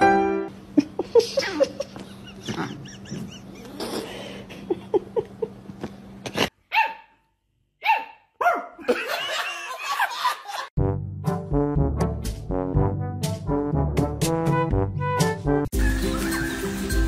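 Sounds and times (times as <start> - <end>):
people laughing: 0.8 - 5.6, 8.8 - 10.7, 15.8 - 17.0
puppy barking and yipping: 6.7 - 7.1, 7.8 - 8.8.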